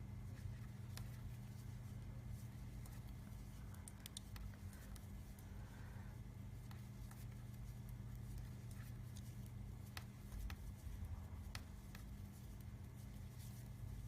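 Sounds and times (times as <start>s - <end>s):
low steady hum: 0.0s - 14.0s
knitting needles clicking: 2.8s - 5.5s.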